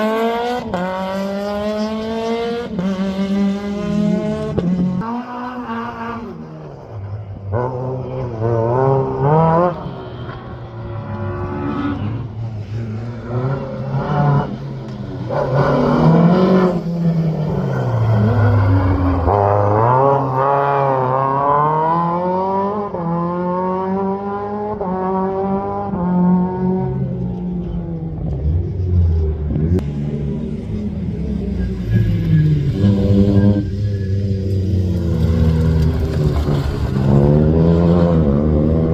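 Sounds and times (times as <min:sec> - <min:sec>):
rally car engine revving: 0:00.0 - 0:38.9
tyre squeal: 0:31.4 - 0:35.8.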